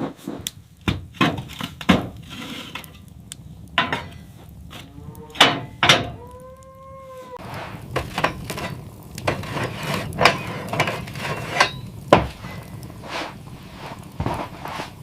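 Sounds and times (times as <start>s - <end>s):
wooden knocks and scraping: 0.0s - 3.1s, 7.4s - 15.0s.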